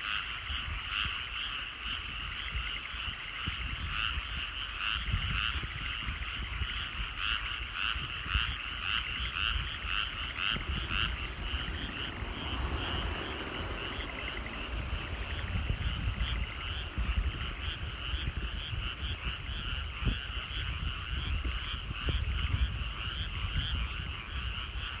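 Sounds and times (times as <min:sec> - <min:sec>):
frogs croaking: 0:00.0 - 0:25.0
low rumble: 0:08.7 - 0:21.4.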